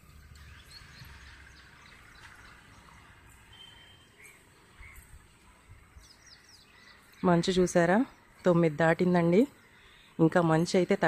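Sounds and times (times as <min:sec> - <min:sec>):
faint birds chirping: 0:00.0 - 0:11.0
low outdoor background noise: 0:00.0 - 0:11.0.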